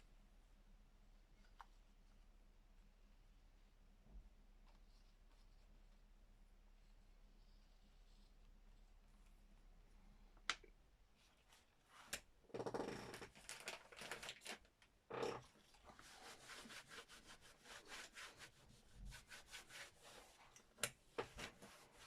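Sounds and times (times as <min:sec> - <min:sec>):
oil pastel scratching on paper: 0:15.9 - 0:22.0.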